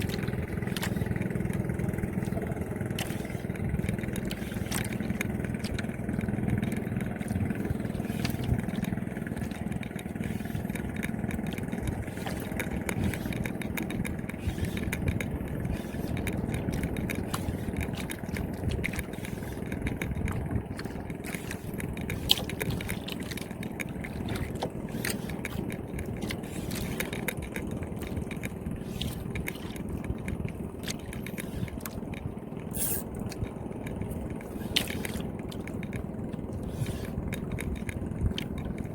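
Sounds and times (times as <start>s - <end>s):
engine humming: 0.0s - 38.9s
small clicks and ticks: 0.0s - 38.9s.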